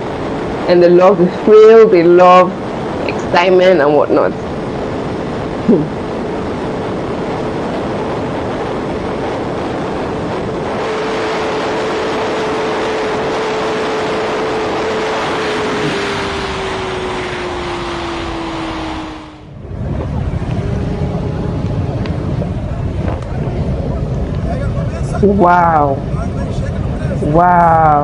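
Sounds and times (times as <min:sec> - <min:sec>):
wind rushing over microphone: 0:00.0 - 0:28.0
motorcycle engine: 0:05.7 - 0:25.6.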